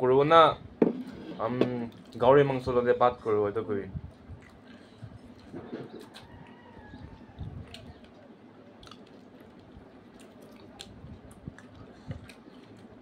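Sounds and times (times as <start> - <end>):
people chewing food: 4.0 - 13.0.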